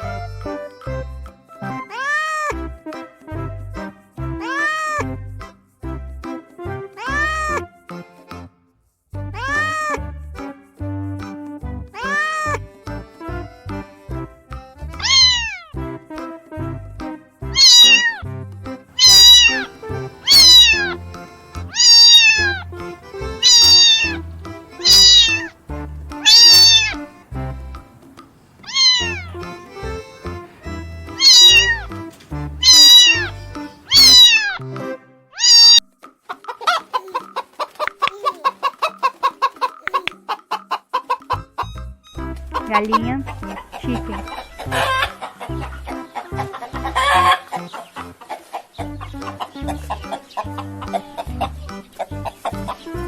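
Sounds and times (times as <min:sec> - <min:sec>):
background music: 0:00.0 - 0:53.0
short pulsing calls: 0:15.0 - 0:15.6, 0:17.6 - 0:18.2, 0:18.9 - 0:34.6, 0:35.4 - 0:35.8
cat meowing: 0:15.0 - 0:15.7, 0:17.6 - 0:18.2, 0:19.0 - 0:34.6, 0:35.4 - 0:35.8.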